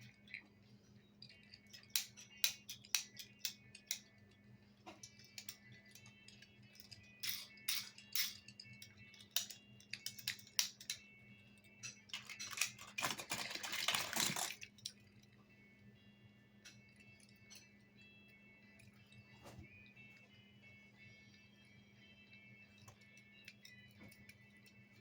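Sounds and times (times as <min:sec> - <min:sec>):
toy vehicles clicking and knocking: 0:00.0 - 0:00.5, 0:01.2 - 0:15.3
toy rattling clatter: 0:00.0 - 0:15.4, 0:16.6 - 0:25.0.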